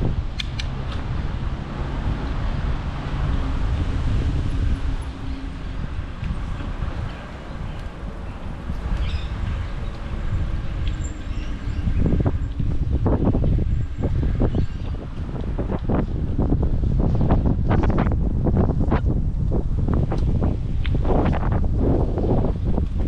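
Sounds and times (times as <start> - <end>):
bicycle tyres rolling on path: 0.0 - 23.0
wind on microphone: 0.0 - 23.0
sharp ticks: 0.3 - 1.0.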